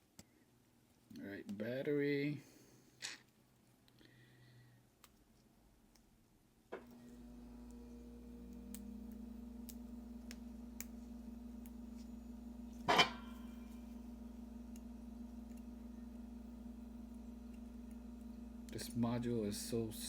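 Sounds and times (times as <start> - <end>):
steady low hum: 6.8 - 20.0.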